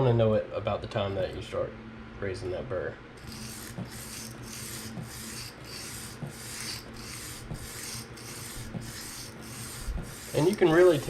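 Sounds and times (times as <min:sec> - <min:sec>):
knife scraping on sharpening stone: 0:03.2 - 0:11.0.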